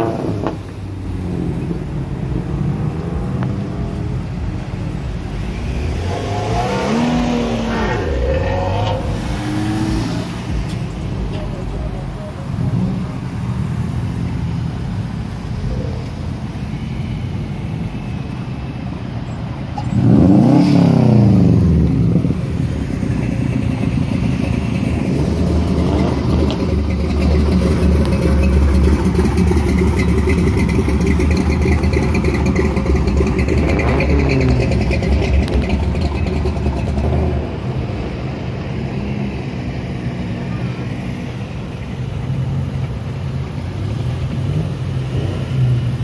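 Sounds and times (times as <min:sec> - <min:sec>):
car engine revving: 0:00.0 - 0:13.5, 0:19.9 - 0:37.7
cars driving slowly past: 0:00.0 - 0:46.0
deep engine rumble: 0:19.1 - 0:38.3.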